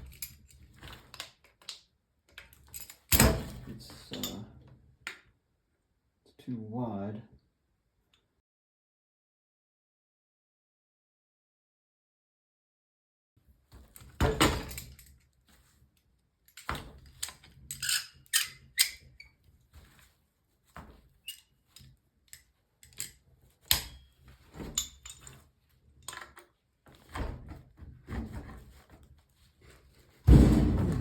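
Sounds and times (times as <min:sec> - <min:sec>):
wrench clinking on metal pipe fitting: 0:24.8 - 0:25.4.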